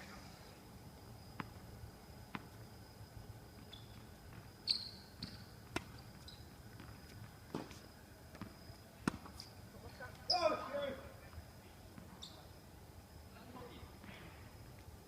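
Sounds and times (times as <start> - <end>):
tennis ball bouncing on court: 5.2 - 6.0, 6.8 - 9.5.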